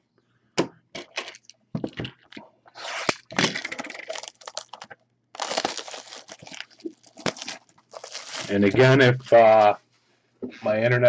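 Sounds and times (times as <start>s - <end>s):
plastic wrap and cardboard tearing: 2.8s - 9.0s.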